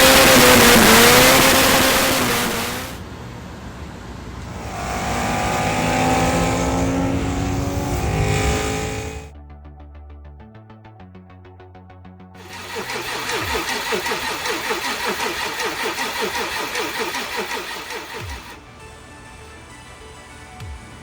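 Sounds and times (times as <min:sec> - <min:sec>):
loud rushing noise: 0:00.0 - 0:03.1, 0:04.4 - 0:09.3
car engine at high revs: 0:00.0 - 0:09.3, 0:12.4 - 0:18.7.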